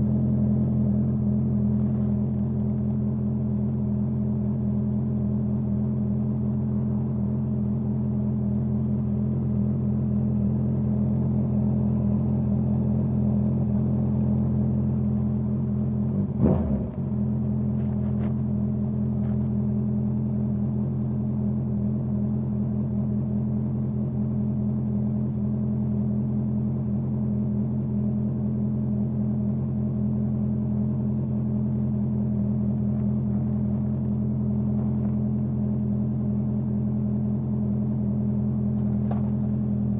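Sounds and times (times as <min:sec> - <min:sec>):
motorcycle engine running: 0:00.0 - 0:39.9
short thump: 0:38.8 - 0:39.5.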